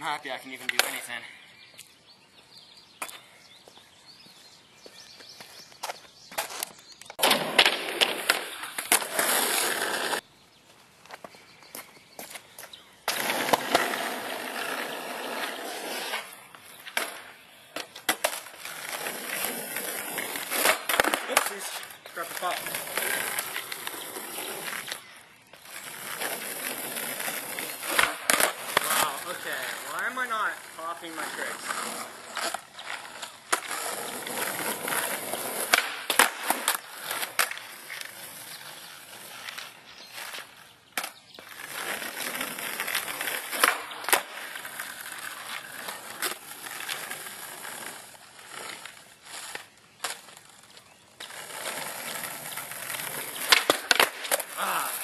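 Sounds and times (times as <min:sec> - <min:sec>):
skateboard wheels rolling on pavement: 0:00.0 - 0:55.0
skateboard clacking on ground: 0:00.6 - 0:01.1, 0:20.4 - 0:24.0, 0:48.8 - 0:54.6.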